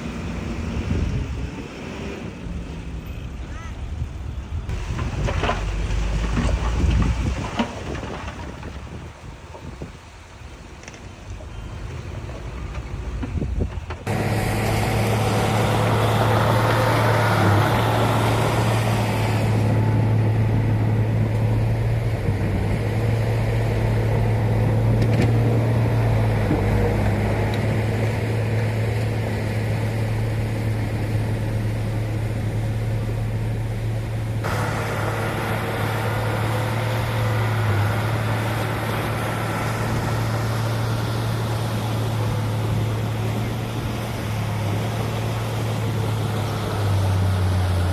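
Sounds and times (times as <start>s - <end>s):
diesel engine running: 11.4s - 47.9s.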